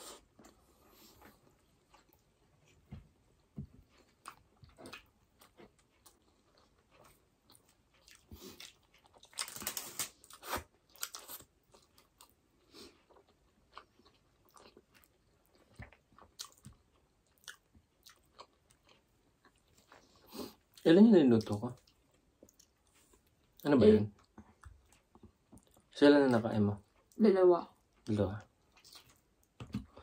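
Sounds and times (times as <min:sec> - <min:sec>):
chewing and wet mouth smacks: 0:04.0 - 0:09.5, 0:13.0 - 0:20.0, 0:21.4 - 0:23.6, 0:24.2 - 0:26.0, 0:27.8 - 0:29.7.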